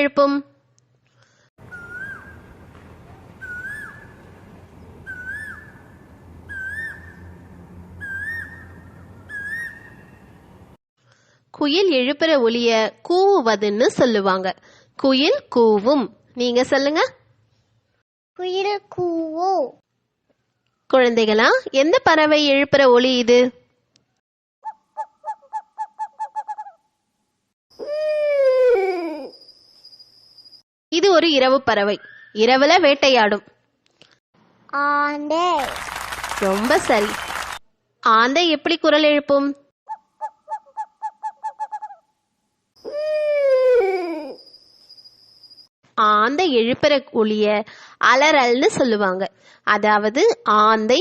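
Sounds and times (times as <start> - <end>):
bird whistled call: 1.7 - 2.4, 3.4 - 4.2, 5.0 - 5.8, 6.5 - 7.2, 8.0 - 10.3, 32.0 - 32.4
owl hooting: 1.7 - 2.4, 3.4 - 4.1, 6.5 - 7.2, 9.3 - 10.2, 24.6 - 26.8, 39.9 - 42.1.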